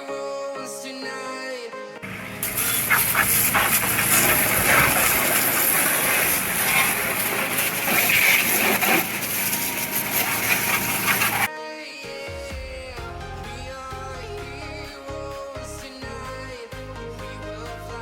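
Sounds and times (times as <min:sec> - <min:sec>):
low hum: 0:02.0 - 0:11.5
water spraying against truck: 0:02.0 - 0:11.5.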